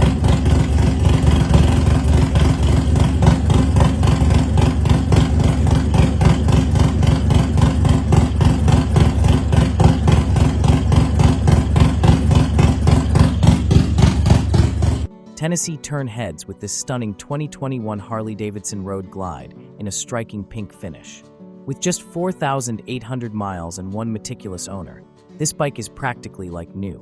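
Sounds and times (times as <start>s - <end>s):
motorcycle idling lumpy exhaust: 0.0s - 15.1s.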